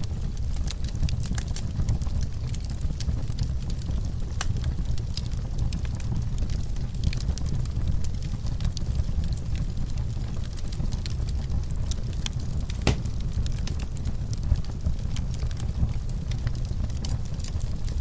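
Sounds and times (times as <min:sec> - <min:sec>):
fire crackles: 0:00.0 - 0:18.0
fire flames rumbling: 0:00.0 - 0:18.0
sharp fire pop: 0:12.8 - 0:13.3.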